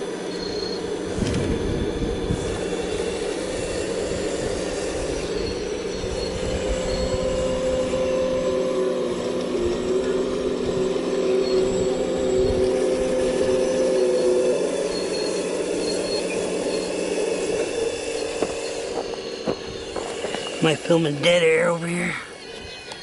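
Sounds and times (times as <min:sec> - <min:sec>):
diesel earthmoving machine whining: 0:00.0 - 0:23.0.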